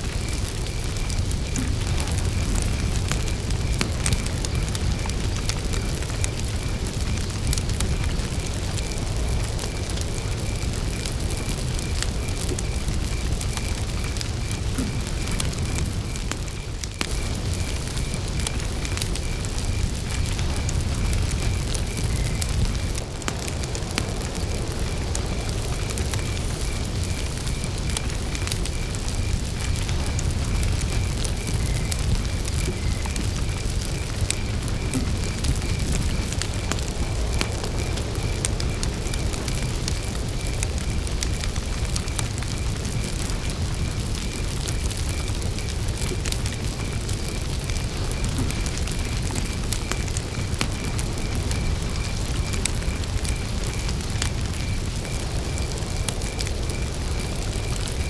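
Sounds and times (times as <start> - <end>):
campfire crackling and popping: 0.0 - 58.0
cricket chirping: 0.0 - 58.0.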